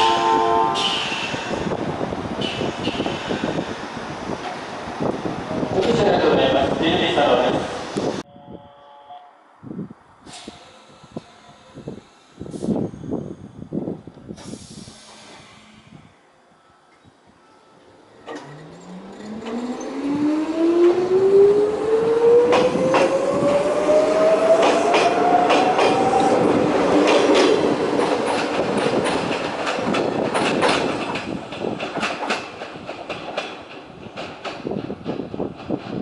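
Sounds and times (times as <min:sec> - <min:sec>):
wheels clacking over rail joints: 0:18.2 - 0:21.1, 0:24.5 - 0:36.0.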